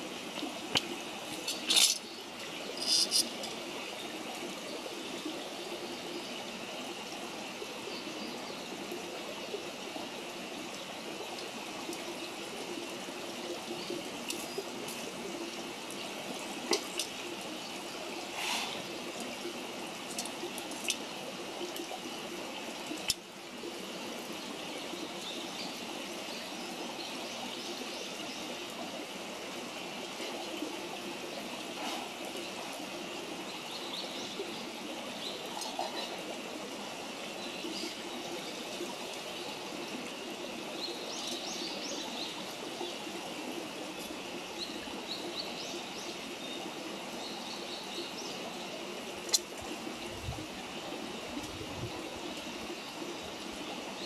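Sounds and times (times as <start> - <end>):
steady rushing hiss: 0.0 - 3.9, 17.9 - 20.8.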